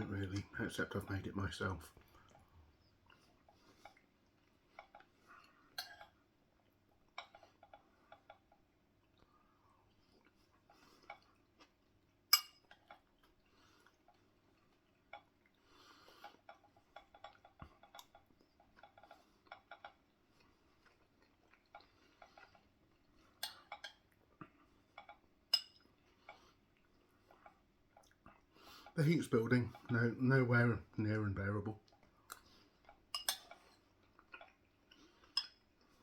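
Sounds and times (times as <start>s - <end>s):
cutlery clinking on a plate: 5.8s - 6.2s, 12.3s - 13.0s, 25.5s - 25.8s, 33.1s - 33.7s.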